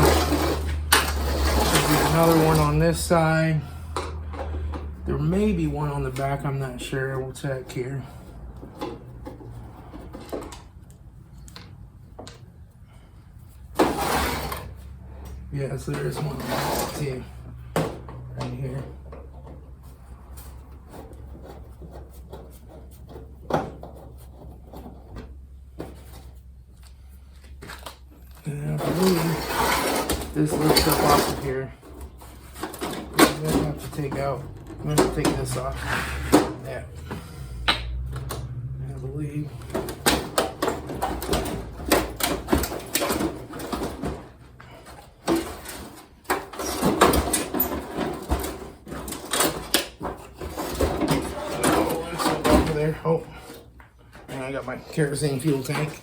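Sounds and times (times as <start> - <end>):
thin sheet metal clanking: 0.0 - 3.2.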